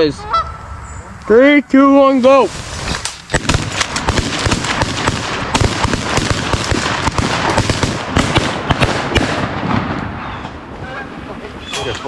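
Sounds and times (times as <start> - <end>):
shotguns firing rapidly: 3.3 - 10.0.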